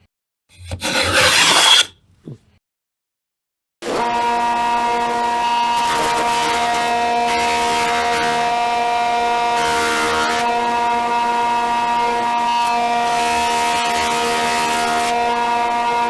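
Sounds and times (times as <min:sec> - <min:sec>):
saw blade cutting wood hiss: 0:00.6 - 0:01.9
table saw motor whining: 0:00.6 - 0:01.9.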